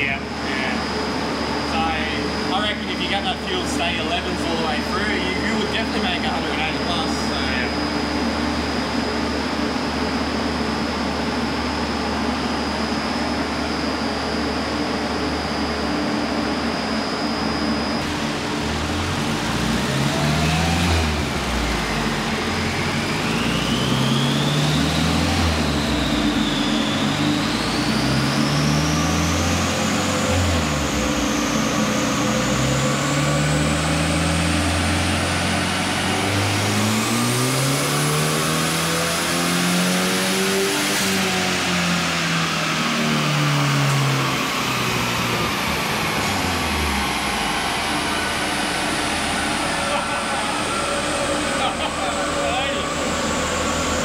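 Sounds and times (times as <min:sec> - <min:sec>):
high whine: 0:00.0 - 0:54.0
car engine revving: 0:17.8 - 0:54.0.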